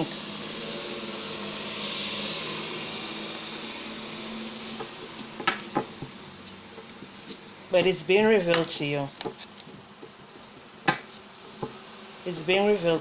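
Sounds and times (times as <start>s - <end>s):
hiss: 0.2s - 4.8s.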